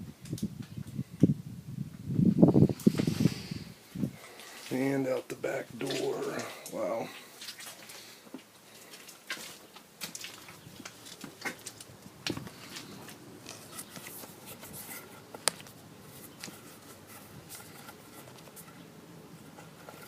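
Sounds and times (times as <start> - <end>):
footsteps on debris and mud: 4.2 - 17.4.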